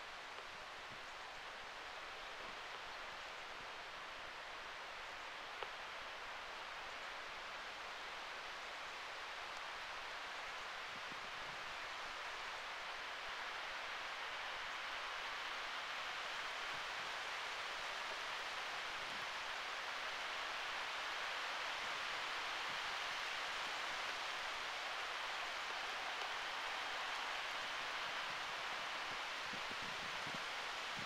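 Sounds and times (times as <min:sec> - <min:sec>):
wind in the trees: 0:00.0 - 0:31.0
rain hissing: 0:16.0 - 0:31.0.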